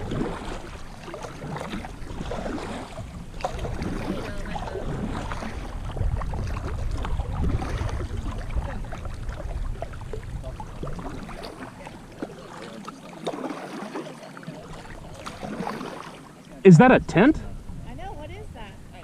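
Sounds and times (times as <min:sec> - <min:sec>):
paddle splashing in water: 0:00.0 - 0:16.9
wind buffeting microphone: 0:02.0 - 0:11.4.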